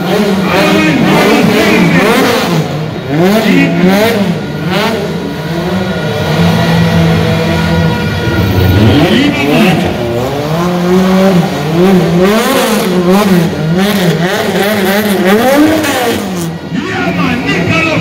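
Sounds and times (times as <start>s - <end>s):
car engine revving hard: 0.0s - 18.0s.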